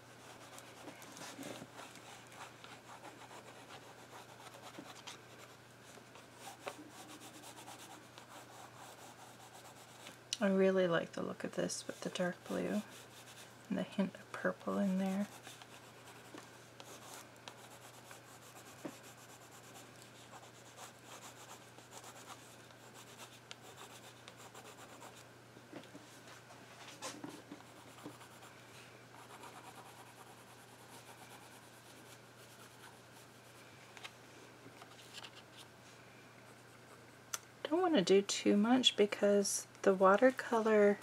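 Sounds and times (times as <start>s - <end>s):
colored pencil scratching on paper: 0.2s - 5.6s, 6.4s - 10.0s, 11.9s - 13.5s, 14.4s - 25.2s, 27.6s - 28.5s, 29.2s - 33.6s.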